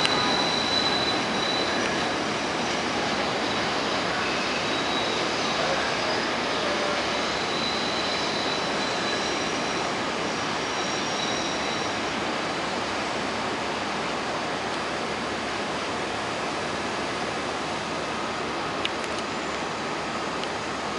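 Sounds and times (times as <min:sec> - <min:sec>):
faint wheel squeal: 0:00.0 - 0:12.0
train rushing rumble: 0:00.0 - 0:20.9.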